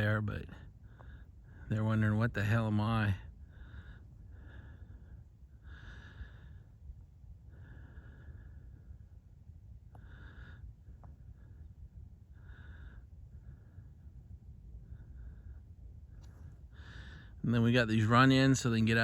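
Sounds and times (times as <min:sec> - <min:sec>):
low steady rumble: 0:00.0 - 0:19.0
person breathing close: 0:03.4 - 0:09.2, 0:09.9 - 0:11.7, 0:14.8 - 0:17.4.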